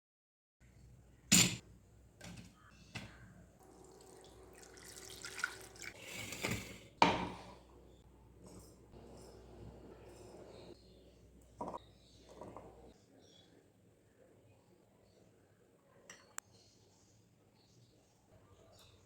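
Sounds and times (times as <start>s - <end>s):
water running in sink: 3.6s - 6.8s.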